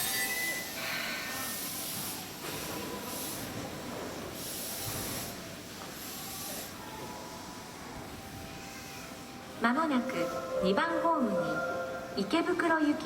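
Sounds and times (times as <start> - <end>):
train brake squeal: 0.0 - 1.2
compressed air hissing: 4.4 - 6.8.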